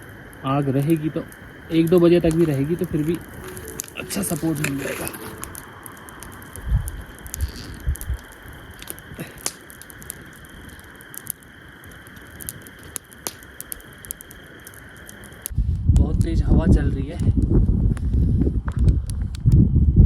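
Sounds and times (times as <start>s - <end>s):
steady high hiss: 0.0s - 15.5s
campfire crackling and popping: 0.0s - 19.7s.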